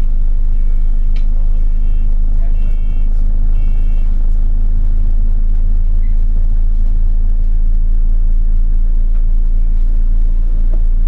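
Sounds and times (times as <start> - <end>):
bus drivetrain rumble and hum: 0.0 - 11.0.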